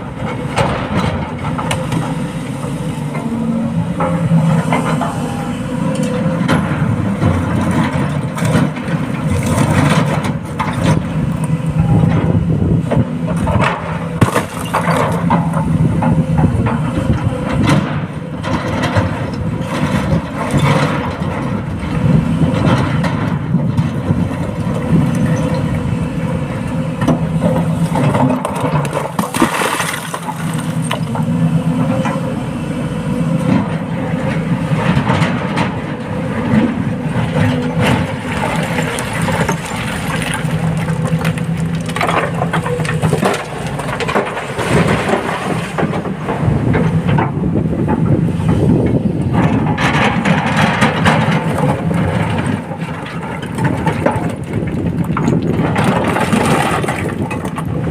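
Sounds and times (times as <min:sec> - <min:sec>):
excavator diesel engine: 0:00.0 - 0:57.9
rock crunching and scraping: 0:37.9 - 0:45.3, 0:51.4 - 0:57.9.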